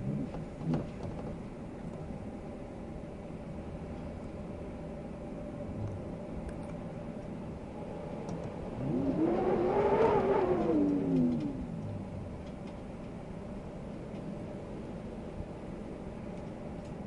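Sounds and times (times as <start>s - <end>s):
wind noise: 7.4s - 13.2s
vehicle passing by: 8.6s - 12.3s.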